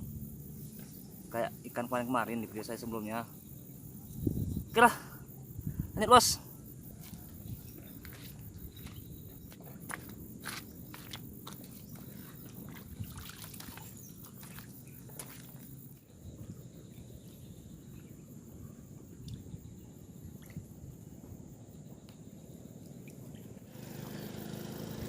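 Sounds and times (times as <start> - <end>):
water trickling and lapping: 6.9 - 25.0.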